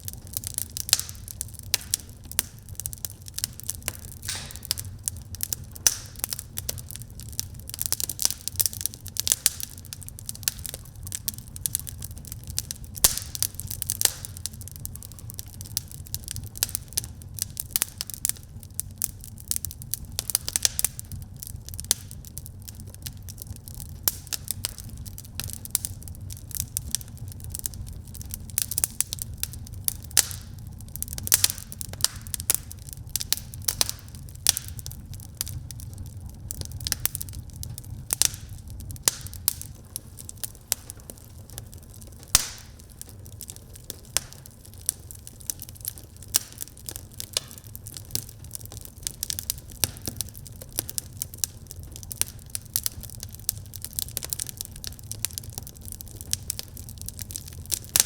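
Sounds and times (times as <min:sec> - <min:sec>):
low rumble of burning fire: 0:00.0 - 0:58.0
wood fire crackling: 0:00.0 - 0:58.0
sharp pops and snaps: 0:03.4 - 0:06.8, 0:13.0 - 0:15.1, 0:40.5 - 0:44.4.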